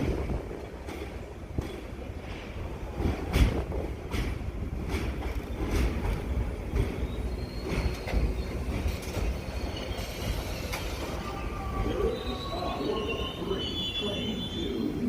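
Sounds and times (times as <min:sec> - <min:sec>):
wheels clacking over rail joints: 0:00.0 - 0:11.9
subway train rumble: 0:00.0 - 0:15.0
high wheel squeal: 0:07.0 - 0:15.0.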